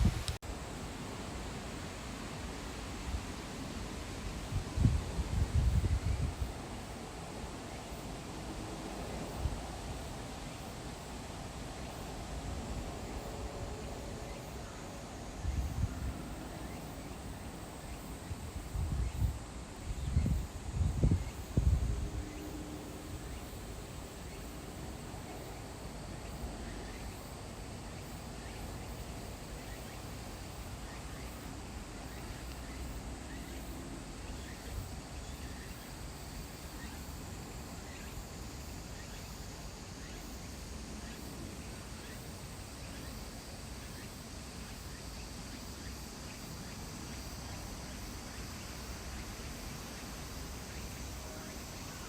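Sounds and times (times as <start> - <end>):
wind rumble: 0.0 - 0.4, 4.5 - 6.6, 18.4 - 23.9
insects chirping: 0.0 - 52.0.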